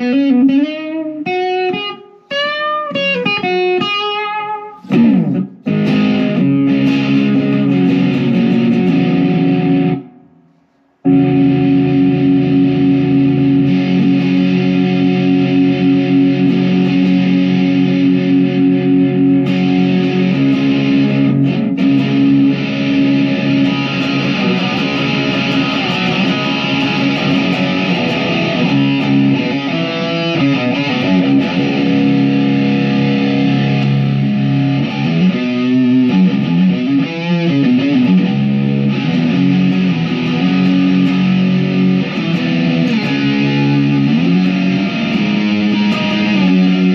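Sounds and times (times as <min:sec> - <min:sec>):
electric guitar chords ringing: 0:00.0 - 0:10.4, 0:11.0 - 0:46.9.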